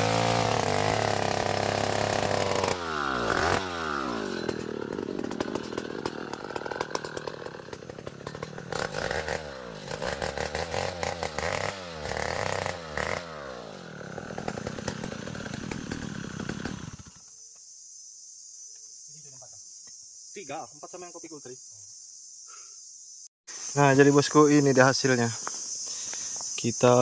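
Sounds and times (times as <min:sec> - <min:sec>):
chainsaw cutting wood: 0:00.0 - 0:17.3.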